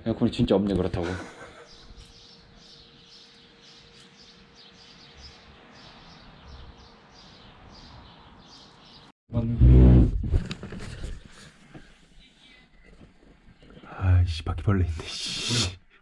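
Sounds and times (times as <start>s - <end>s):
faint outdoor background: 0.0s - 16.0s
small birds chirping: 0.9s - 9.1s.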